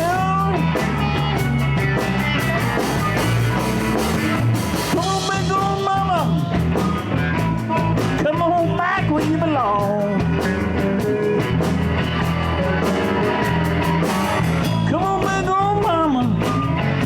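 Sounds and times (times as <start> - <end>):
live blues band: 0.0 - 17.0.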